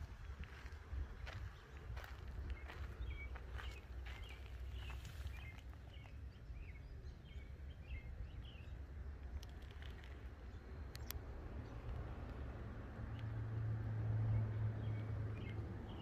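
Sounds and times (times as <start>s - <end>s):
steady low rumble: 0.0s - 16.0s
small birds chirping: 0.1s - 13.4s
faint clicks: 9.2s - 11.2s.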